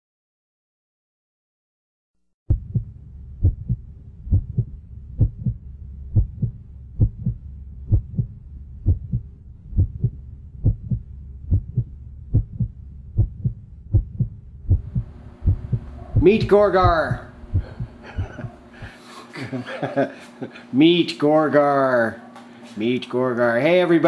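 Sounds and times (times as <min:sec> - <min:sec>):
heartbeat double thud: 0:02.5 - 0:19.0
low hum: 0:02.5 - 0:20.7.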